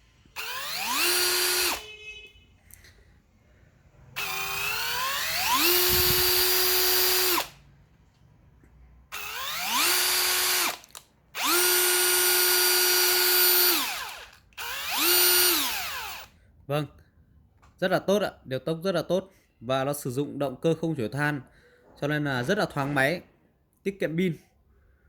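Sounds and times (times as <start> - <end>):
cordless drill whining: 0.4 - 1.9, 4.2 - 7.6, 9.1 - 16.3.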